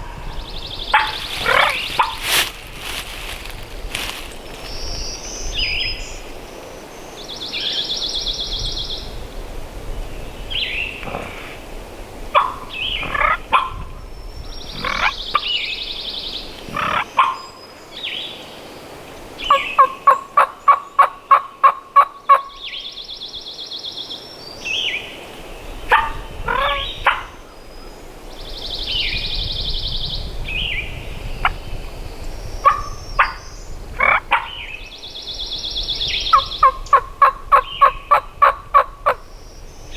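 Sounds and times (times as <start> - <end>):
wind rumble on microphone: 0.0 - 17.0, 25.4 - 39.9
turkey gobbling: 0.9 - 2.3.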